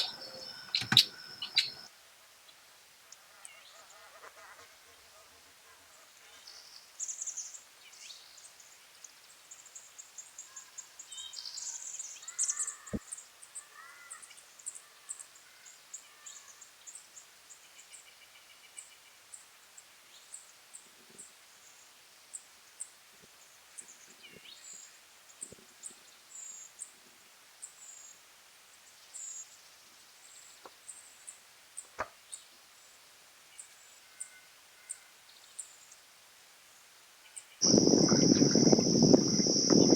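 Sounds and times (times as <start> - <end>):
blackbirds calling: 0.0 - 1.9, 37.6 - 39.9.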